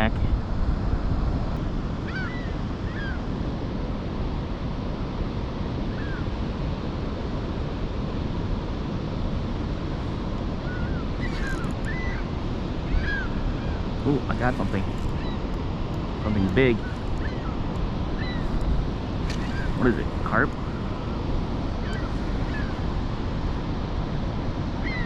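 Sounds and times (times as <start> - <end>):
short bird calls: 10.6 - 15.5, 16.2 - 18.6, 19.2 - 21.0, 21.8 - 22.9.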